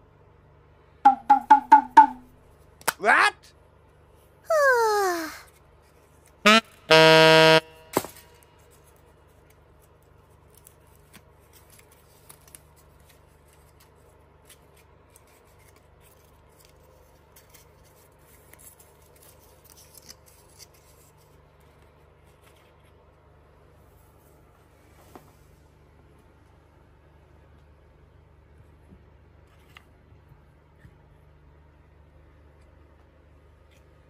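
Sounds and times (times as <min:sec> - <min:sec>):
faint paper rustling: 0:05.2 - 0:06.4, 0:08.1 - 0:26.6, 0:28.6 - 0:31.4.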